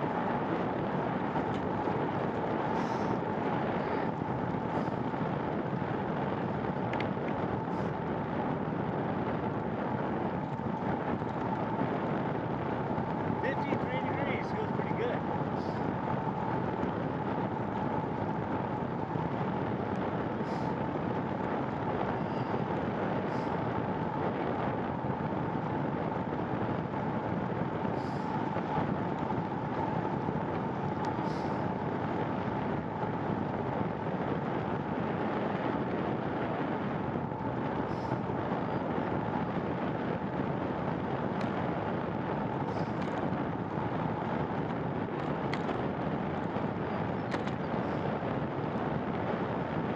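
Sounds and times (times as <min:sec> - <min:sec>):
faint steady whine: 0:00.0 - 0:49.9
rushing noise of bicycle in rain: 0:00.0 - 0:49.9.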